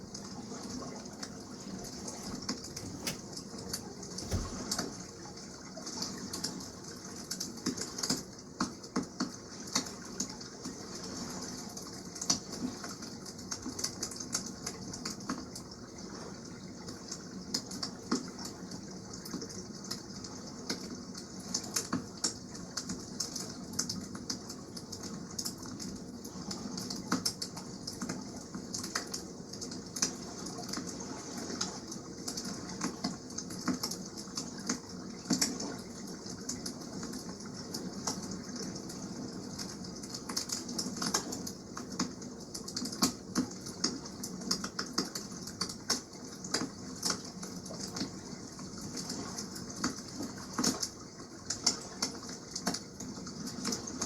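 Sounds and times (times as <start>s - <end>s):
water rushing: 4.2s - 5.0s.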